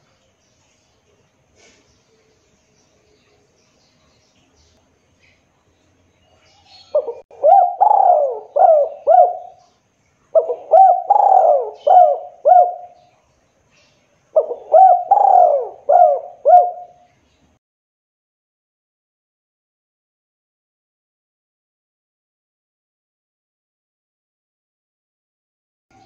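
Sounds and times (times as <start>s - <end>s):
dove cooing: 6.8s - 9.6s, 10.3s - 13.0s, 14.4s - 17.0s.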